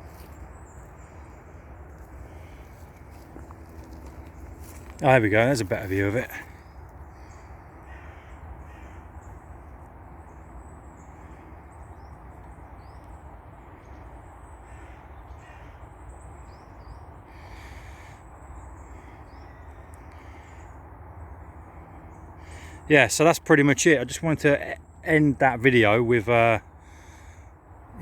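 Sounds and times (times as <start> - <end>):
low outdoor rumble: 0.0 - 28.0
crows cawing: 1.0 - 9.4, 13.8 - 16.2, 16.9 - 22.9, 26.6 - 27.6.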